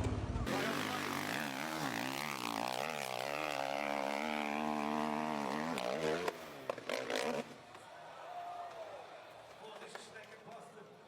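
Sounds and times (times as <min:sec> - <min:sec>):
monster truck engine revving: 0:00.0 - 0:07.6.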